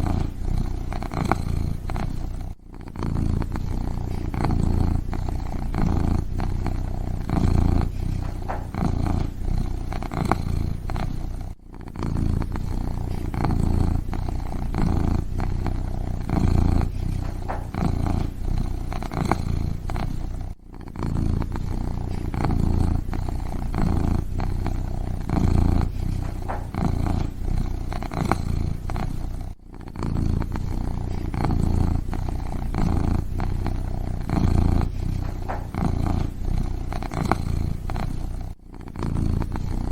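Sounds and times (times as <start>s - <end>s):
kitten purring: 0.0s - 39.9s.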